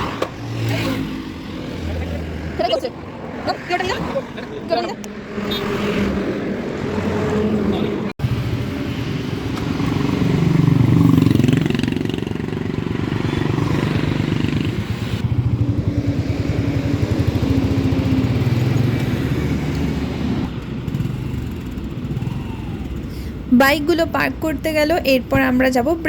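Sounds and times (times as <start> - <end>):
motorcycle engine running: 8.2 - 23.1.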